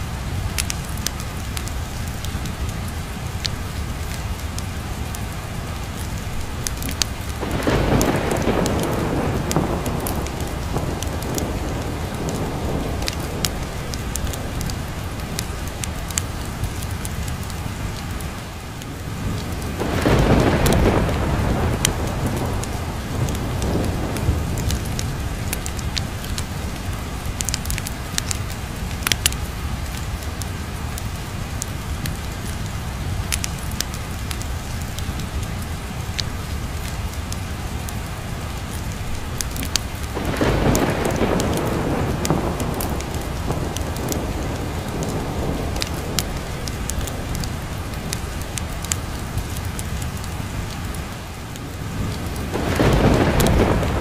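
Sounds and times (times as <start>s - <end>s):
steady rain: 0.0s - 54.0s
thunder rolling: 6.8s - 16.4s, 19.1s - 26.5s, 39.6s - 49.3s, 51.7s - 54.0s.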